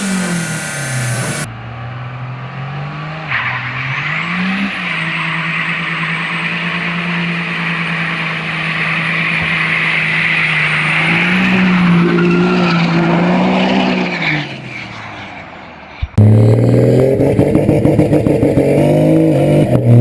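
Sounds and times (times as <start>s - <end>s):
loud hiss: 0.0s - 1.5s
car engine at high revs: 0.0s - 14.4s, 16.0s - 20.0s.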